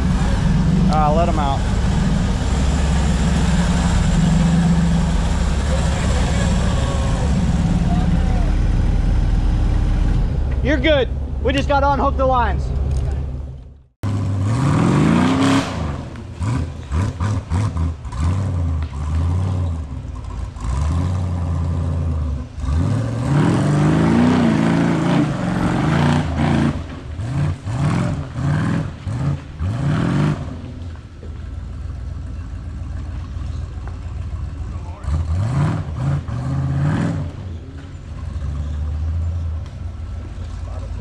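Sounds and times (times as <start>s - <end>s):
engine revving in bursts: 14.0s - 20.0s, 20.6s - 30.7s, 34.9s - 37.5s.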